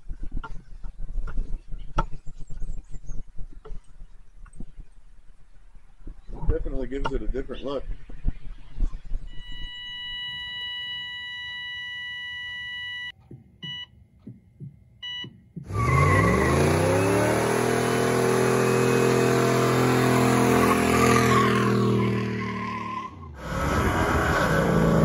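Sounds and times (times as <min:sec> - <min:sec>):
electronic beeps: 0:08.2 - 0:14.0, 0:15.0 - 0:15.4
car engine revving: 0:15.6 - 0:25.0.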